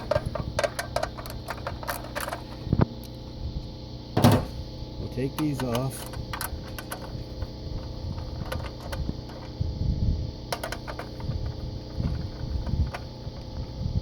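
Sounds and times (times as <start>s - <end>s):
low uneven rumble: 0.0s - 14.0s.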